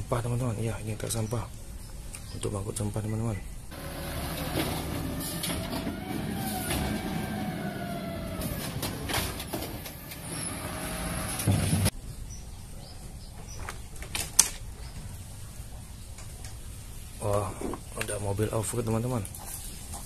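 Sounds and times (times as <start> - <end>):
vehicle with gliding tones: 3.7 - 11.9.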